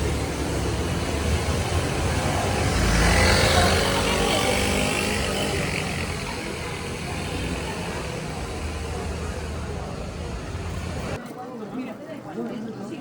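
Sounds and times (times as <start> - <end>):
motor vehicle passing: 0.0 - 11.2
street noise: 0.0 - 13.0.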